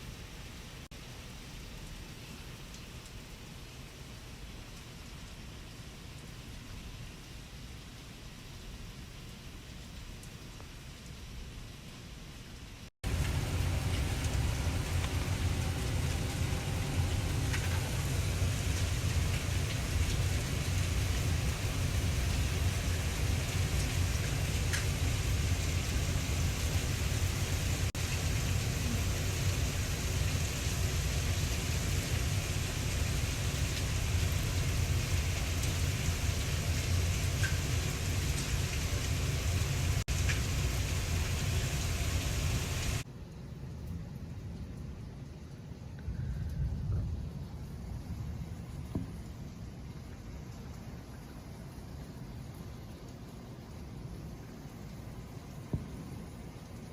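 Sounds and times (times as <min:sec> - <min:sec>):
heavy rain hissing: 0:12.6 - 0:43.1
low rumble: 0:13.0 - 0:43.0.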